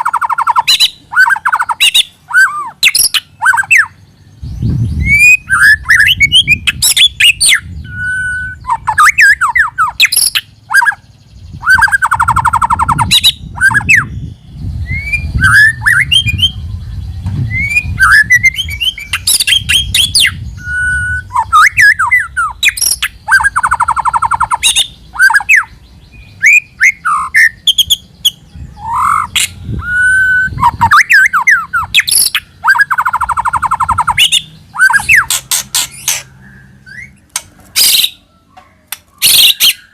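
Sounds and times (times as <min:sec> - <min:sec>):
bird singing whistled notes: 0:00.0 - 0:39.9
bird harsh buzzy rattle: 0:35.2 - 0:36.3.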